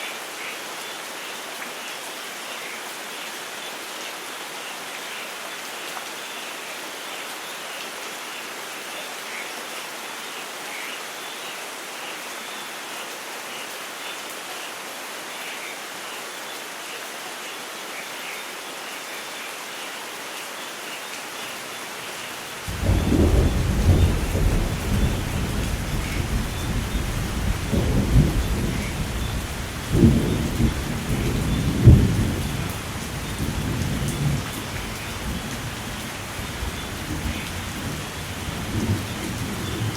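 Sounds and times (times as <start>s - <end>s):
steady rain falling: 0.0s - 39.9s
thunderclap and rolling rumble: 22.7s - 35.4s.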